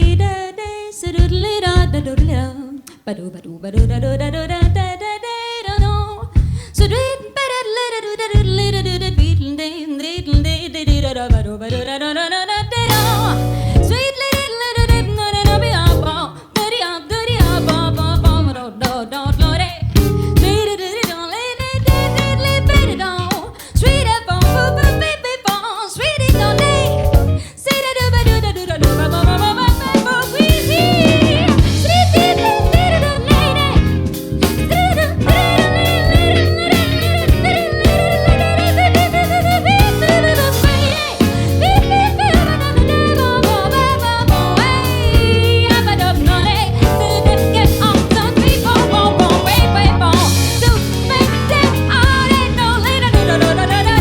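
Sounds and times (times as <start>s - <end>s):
drum kit and bass groove: 0.0s - 0.4s, 1.1s - 2.6s, 3.8s - 5.0s, 5.7s - 7.1s, 8.4s - 9.5s, 10.2s - 11.9s, 12.6s - 54.0s
wavering melodic lead line: 28.8s - 54.0s.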